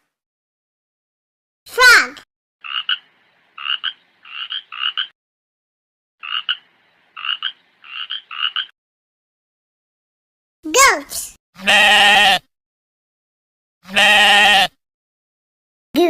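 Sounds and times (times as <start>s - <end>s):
frog croaking: 2.6s - 5.2s, 6.2s - 8.8s.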